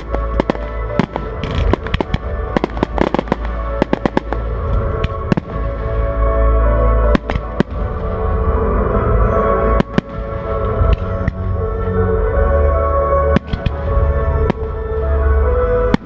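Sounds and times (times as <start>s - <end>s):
fireworks bangs: 0.0s - 6.2s, 7.1s - 8.2s, 9.7s - 11.5s
music: 0.0s - 16.0s.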